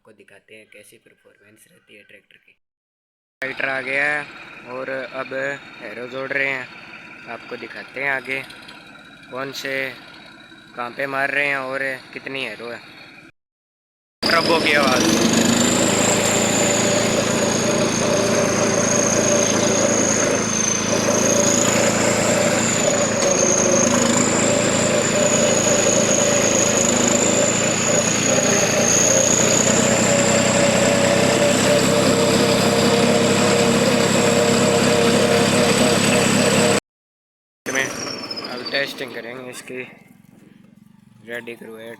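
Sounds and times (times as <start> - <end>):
tractor diesel engine running: 3.4 - 13.3, 14.2 - 36.8, 37.7 - 41.9
turbocharger whistle: 14.2 - 36.8, 37.7 - 39.3.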